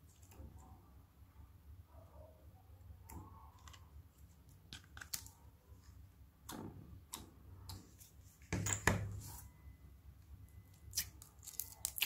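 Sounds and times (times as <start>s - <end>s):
slime sticky squishes: 10.7s - 12.0s.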